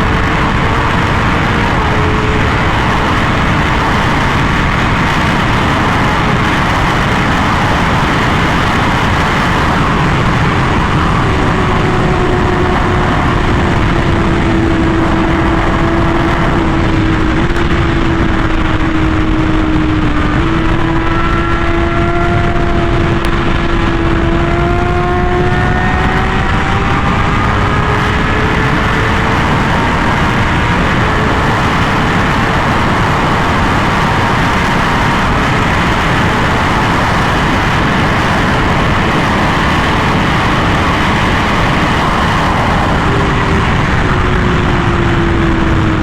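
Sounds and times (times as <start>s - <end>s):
motorcycle engine cruising: 0.0s - 46.0s
wind noise on microphone: 0.0s - 46.0s.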